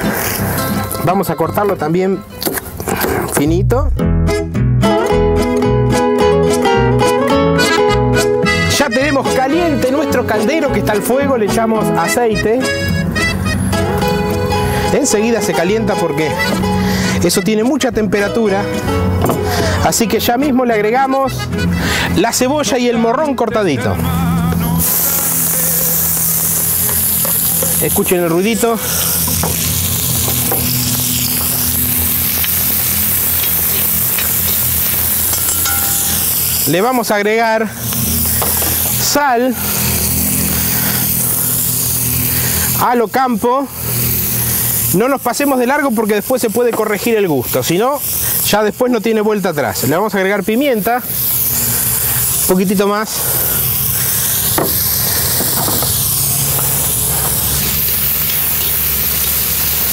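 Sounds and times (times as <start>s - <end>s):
steady low drone: 12.7s - 15.1s, 23.7s - 42.9s
vegetables sizzling in hot oil: 24.9s - 36.8s, 37.8s - 42.8s, 43.7s - 48.6s, 50.7s - 59.9s.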